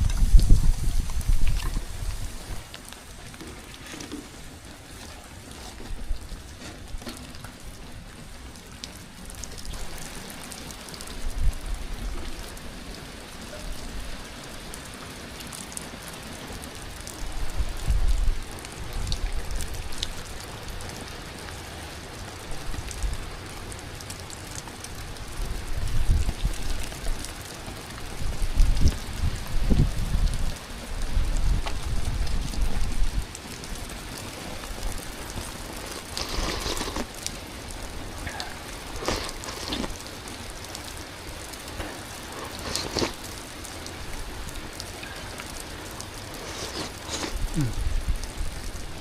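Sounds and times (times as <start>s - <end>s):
rain hissing: 0.0s - 49.0s.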